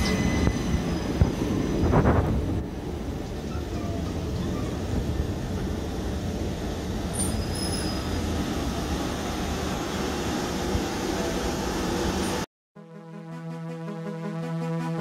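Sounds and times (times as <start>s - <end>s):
faint high squeal: 7.1s - 8.2s.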